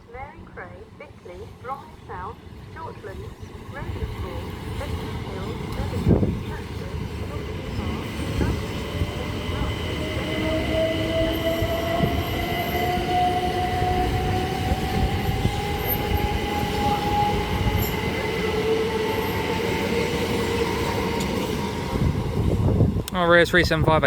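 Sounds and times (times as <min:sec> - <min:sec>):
train wheels on rails: 0:02.1 - 0:23.2
electric train motor whine: 0:07.3 - 0:22.8.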